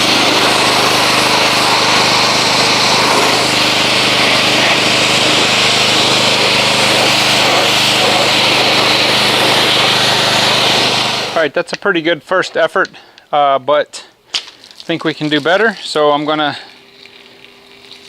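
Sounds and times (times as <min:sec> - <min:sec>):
pressure washer motor humming: 0:00.0 - 0:11.5, 0:15.0 - 0:18.0
water jet hissing: 0:00.0 - 0:11.5, 0:15.1 - 0:18.0.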